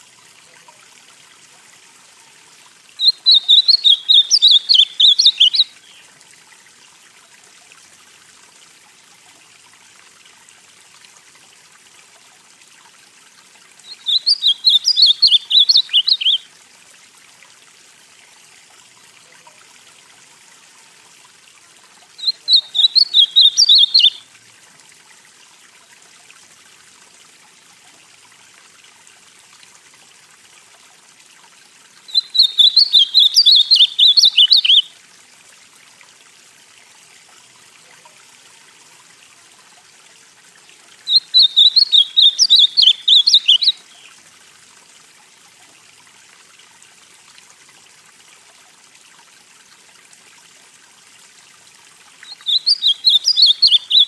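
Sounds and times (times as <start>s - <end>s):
faint steady hiss: 0.0s - 54.0s
bird singing: 3.0s - 6.0s, 13.8s - 16.4s, 22.2s - 24.2s, 32.1s - 34.9s, 41.1s - 44.1s, 52.2s - 54.0s.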